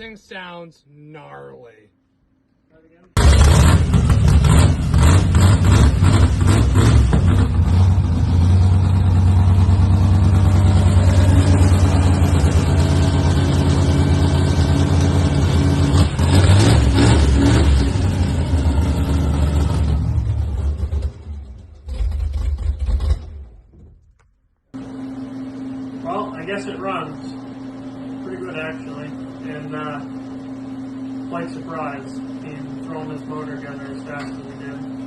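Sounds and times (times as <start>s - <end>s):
engine loping idle: 3.2s - 16.3s
engine revving: 3.2s - 23.6s.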